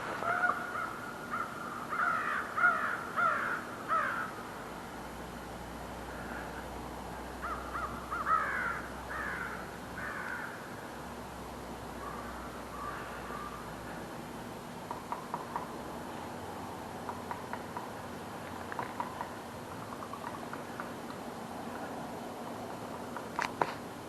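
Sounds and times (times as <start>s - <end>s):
crows cawing: 0.2s - 4.4s, 7.4s - 11.0s, 12.0s - 14.0s.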